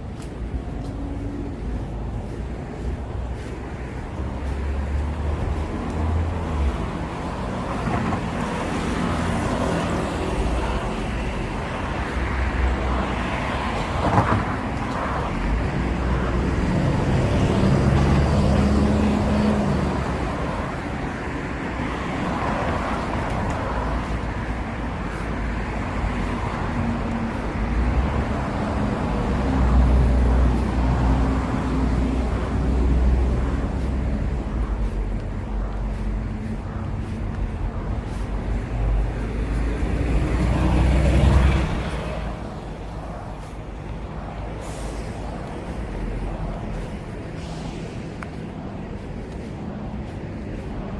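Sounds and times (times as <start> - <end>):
cars passing: 0.0 - 50.9.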